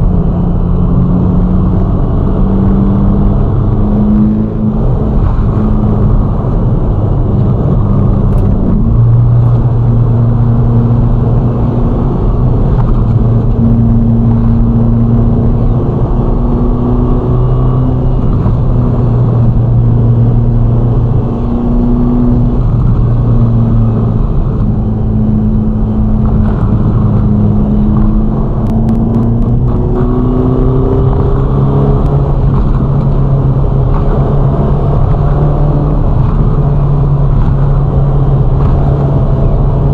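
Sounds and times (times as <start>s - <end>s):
car engine cruising: 0.0s - 39.9s
road and wind noise: 0.0s - 39.9s.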